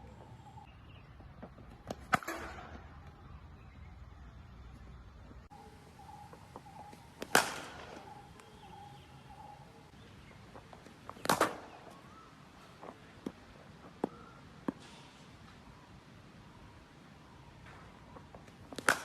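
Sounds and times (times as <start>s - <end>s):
cricket bat striking ball: 6.6s - 8.7s, 11.1s - 11.8s, 18.7s - 19.0s.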